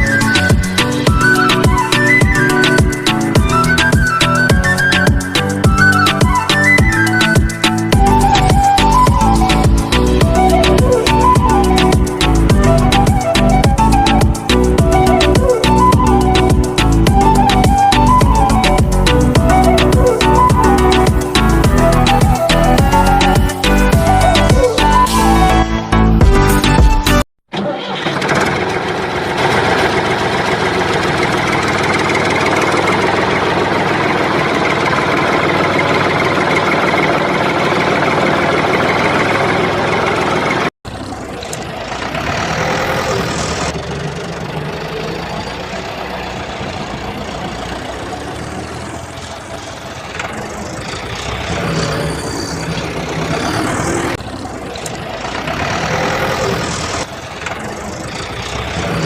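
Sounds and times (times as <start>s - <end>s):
machine running like engine: 27.5s - 59.0s.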